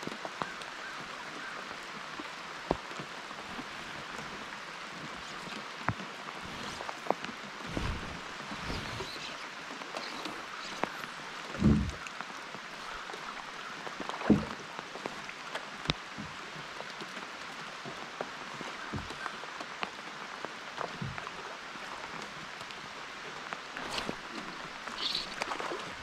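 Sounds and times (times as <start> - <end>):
rain hissing: 3.3 - 13.7, 23.6 - 26.0
raindrop ticks: 9.8 - 18.0.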